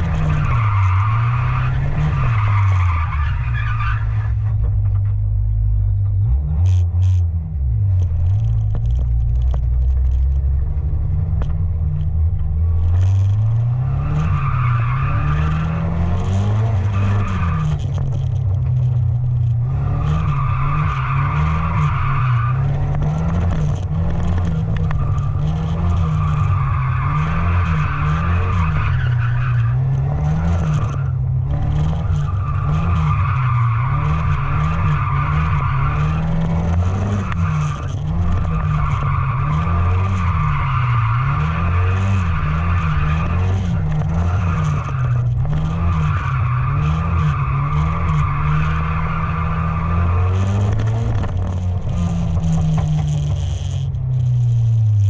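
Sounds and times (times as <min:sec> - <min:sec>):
truck engine revving: 0:00.0 - 0:04.4.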